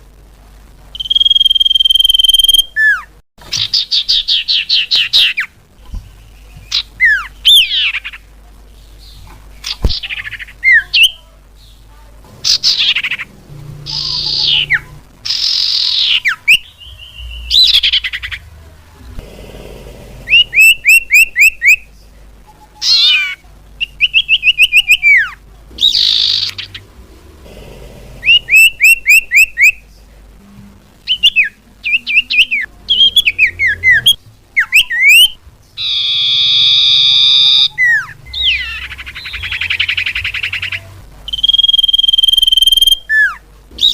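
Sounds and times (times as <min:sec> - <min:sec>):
harsh buzzy bird call: 0:12.4 - 0:18.4, 0:20.2 - 0:21.8, 0:28.1 - 0:29.8
whistled bird calls: 0:31.1 - 0:43.9.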